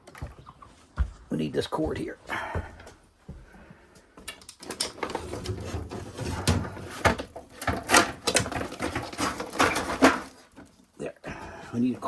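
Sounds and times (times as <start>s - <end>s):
objects knocking and clattering: 4.2s - 12.0s
rustling: 4.6s - 12.0s.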